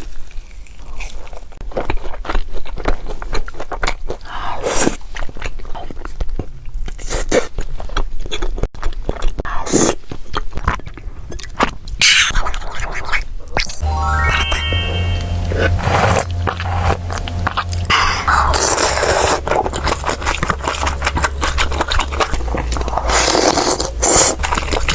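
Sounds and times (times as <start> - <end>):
chewing crunchy food: 0.0 - 13.8, 17.2 - 24.9
loud crunching bite: 17.6 - 24.9.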